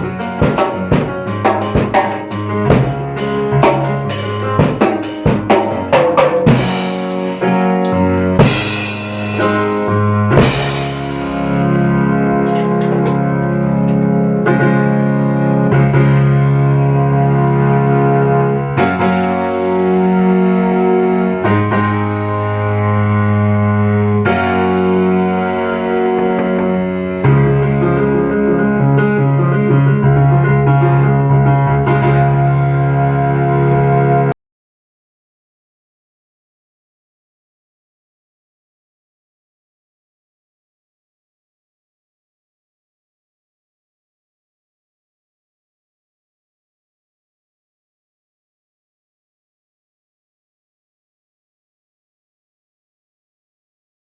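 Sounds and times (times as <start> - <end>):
drum hits: 0.0 - 14.0
sustained chords: 2.3 - 21.4, 22.0 - 34.3
steady low note: 6.4 - 18.8, 22.4 - 34.4
cymbal crashes: 8.4 - 9.8.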